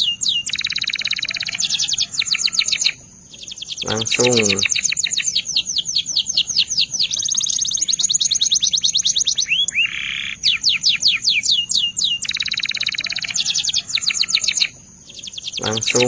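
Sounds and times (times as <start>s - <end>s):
canary singing: 0.0s - 16.0s.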